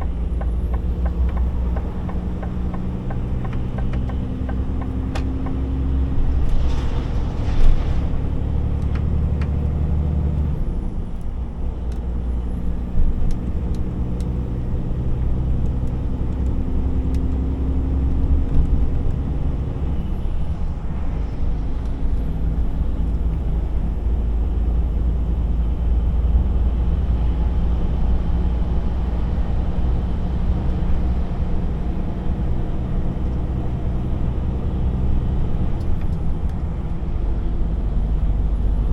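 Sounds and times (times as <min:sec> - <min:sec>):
road noise: 0:00.0 - 0:38.9
truck diesel engine droning: 0:00.0 - 0:38.9.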